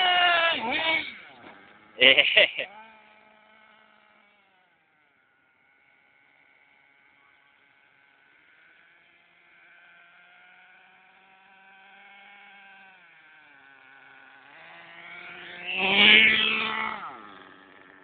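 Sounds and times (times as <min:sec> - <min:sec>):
toy truck motor whining: 0:10.4 - 0:18.0.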